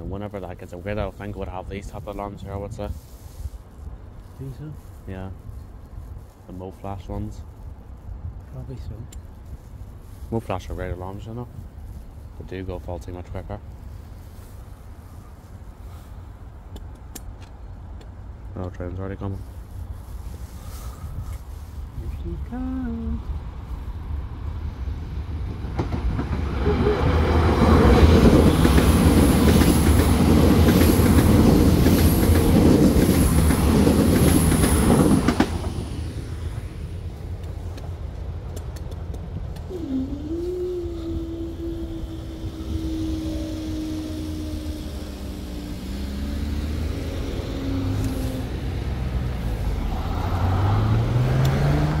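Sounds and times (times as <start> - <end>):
cars passing: 20.1 - 52.0
crossing barriers humming: 21.8 - 52.0
train wheels clattering: 25.5 - 36.0
train wheel squeal: 26.5 - 27.6.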